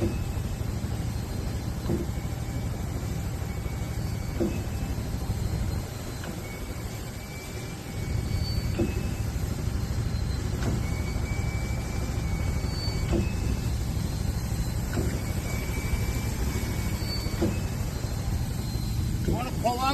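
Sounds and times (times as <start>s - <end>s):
sprayer pump rumbling: 0.0s - 19.9s.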